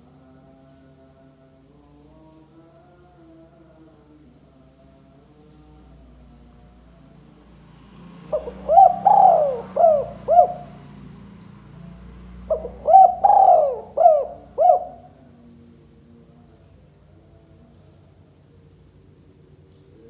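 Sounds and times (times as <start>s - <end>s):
dove cooing: 8.3s - 10.8s, 12.4s - 15.2s.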